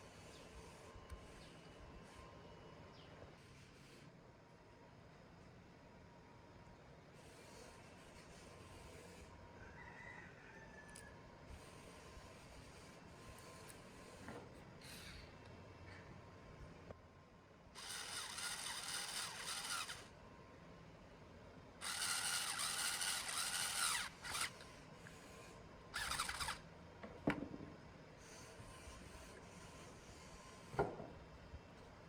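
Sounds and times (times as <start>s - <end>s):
harsh tool scraping: 21.8s - 26.6s.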